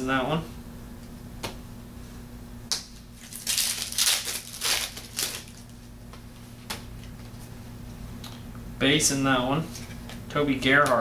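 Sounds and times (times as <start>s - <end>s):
foil wrapper crinkling and tearing: 3.2s - 5.7s
foil wrapper rustling: 3.2s - 5.7s.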